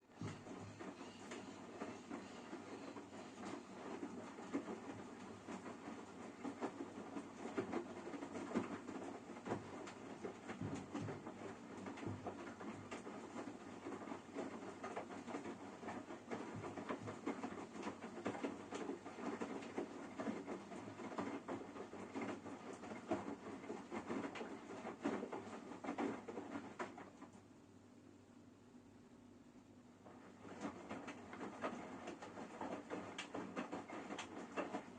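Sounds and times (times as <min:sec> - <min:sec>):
washing machine rumble: 0:00.0 - 0:34.9
irregular pattering and clicking: 0:00.1 - 0:27.4, 0:30.1 - 0:34.9.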